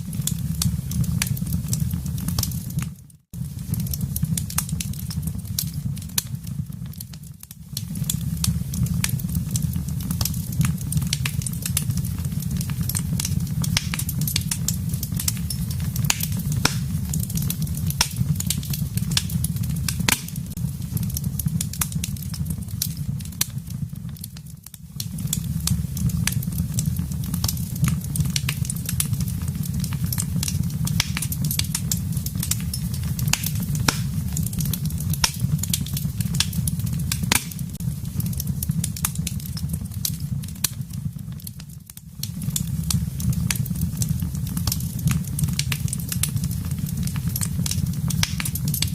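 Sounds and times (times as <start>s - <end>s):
low rumble of flames: 0.0s - 48.9s
wood fire crackling and popping: 0.0s - 48.9s.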